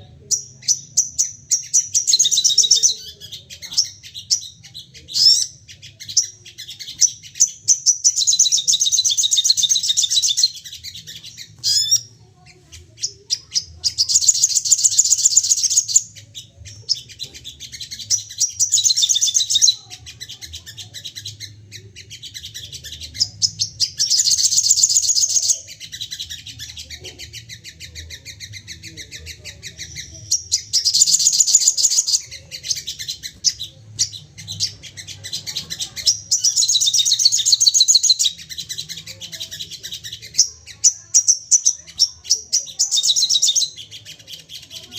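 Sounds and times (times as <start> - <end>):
bird chirps: 0.0 - 44.9
songbird fast chattering song: 0.0 - 44.9.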